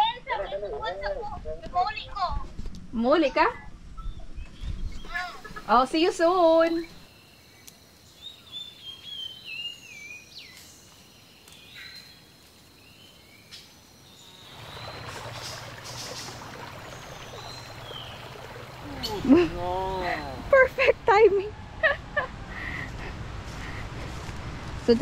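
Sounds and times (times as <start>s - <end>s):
bird chirps: 6.6s - 12.3s.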